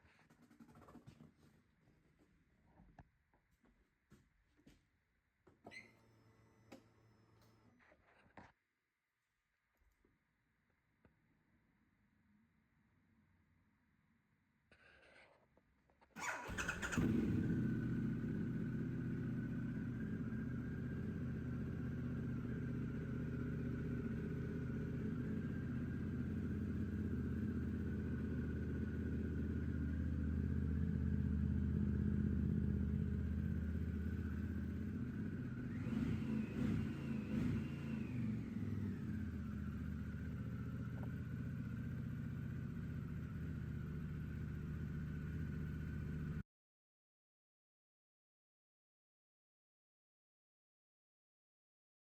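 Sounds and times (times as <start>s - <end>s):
motorcycle engine idling: 16.2s - 46.4s.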